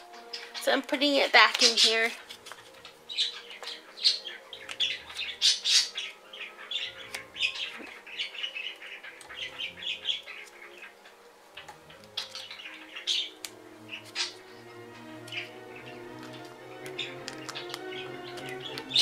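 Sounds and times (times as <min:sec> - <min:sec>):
bird chirping and squawking: 0:00.0 - 0:19.0.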